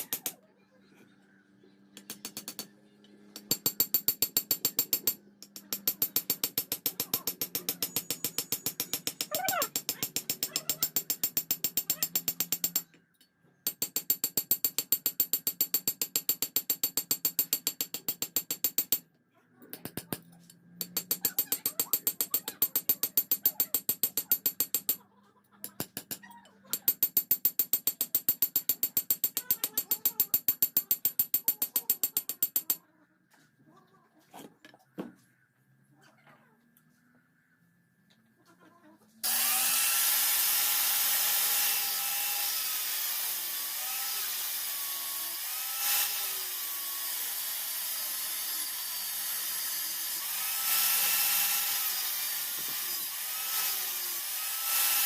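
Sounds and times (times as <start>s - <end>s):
rapid metal-on-metal striking: 3.3s - 12.9s, 13.7s - 19.0s, 20.8s - 25.0s, 25.7s - 32.8s.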